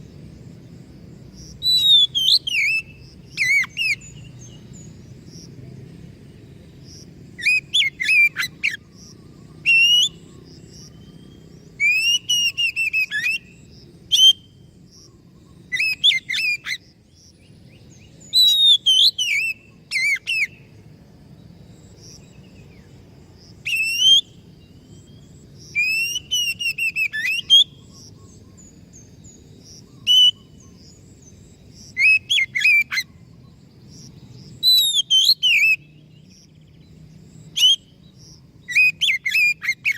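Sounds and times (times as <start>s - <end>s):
bird singing whistled phrases: 1.6s - 4.4s, 7.4s - 8.8s, 9.6s - 10.3s, 11.0s - 14.6s, 15.7s - 16.8s, 18.2s - 20.6s, 23.6s - 24.4s, 25.0s - 28.0s, 30.0s - 30.5s, 32.0s - 33.1s, 34.6s - 36.0s, 37.5s - 38.0s, 38.6s - 39.9s.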